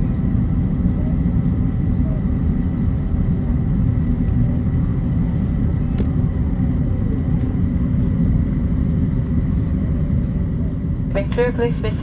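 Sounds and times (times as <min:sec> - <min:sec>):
aircraft cabin low rumble: 0:00.0 - 0:12.0.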